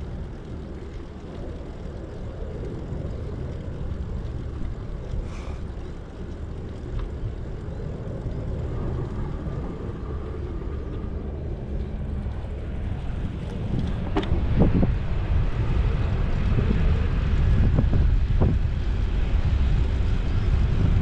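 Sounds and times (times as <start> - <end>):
bicycle tyres rolling: 0.0 - 21.0
wind buffeting microphone: 0.0 - 21.0.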